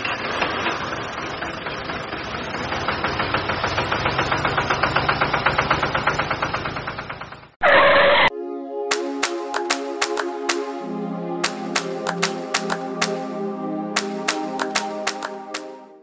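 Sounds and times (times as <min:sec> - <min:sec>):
small engine chugging: 0:00.0 - 0:07.6.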